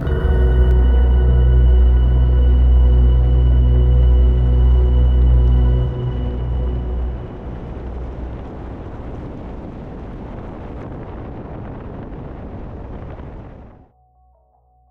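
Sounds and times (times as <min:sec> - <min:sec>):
drone music: 0:00.0 - 0:09.6
steady rushing noise: 0:00.0 - 0:13.9.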